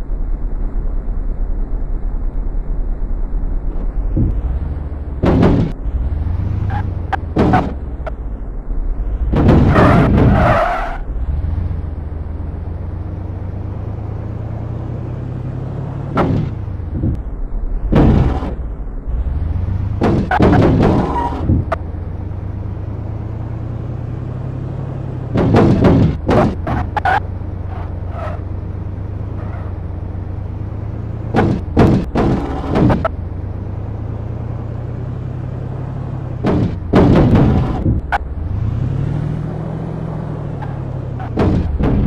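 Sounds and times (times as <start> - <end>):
car engine hum: 0.0 - 42.0
cars thumping over speed bump: 3.7 - 5.8, 6.6 - 8.2, 9.2 - 11.0, 16.0 - 18.8, 19.6 - 22.3, 24.8 - 42.0.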